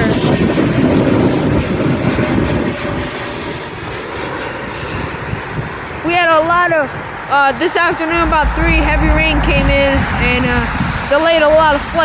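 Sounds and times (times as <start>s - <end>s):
jet engines rumbling hiss: 2.6s - 12.0s.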